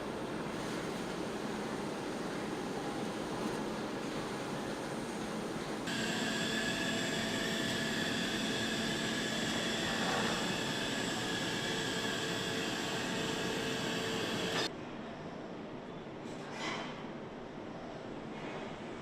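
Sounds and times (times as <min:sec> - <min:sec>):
factory machinery hum and whine: 0:00.0 - 0:19.0.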